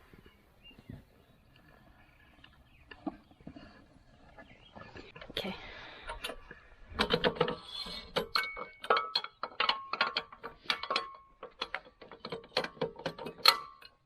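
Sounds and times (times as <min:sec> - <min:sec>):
metallic clinking and clattering: 0:06.1 - 0:14.0.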